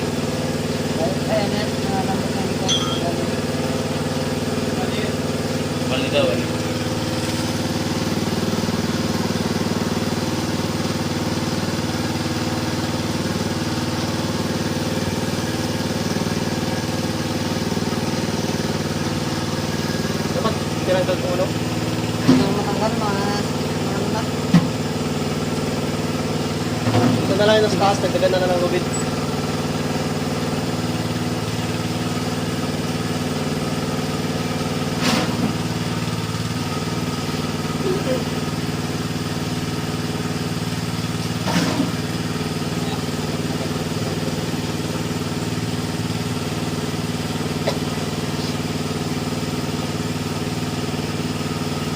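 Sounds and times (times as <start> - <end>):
small engine idling: 0.0 - 51.9.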